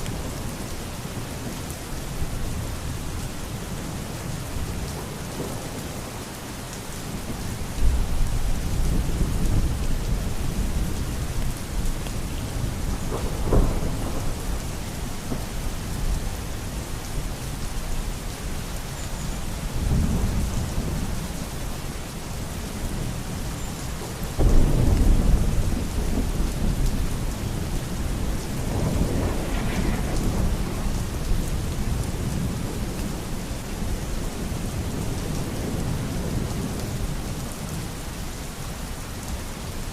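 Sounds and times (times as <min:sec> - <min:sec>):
rain falling: 0:00.0 - 0:39.9
thunder rumbling: 0:07.2 - 0:17.4, 0:24.4 - 0:34.0.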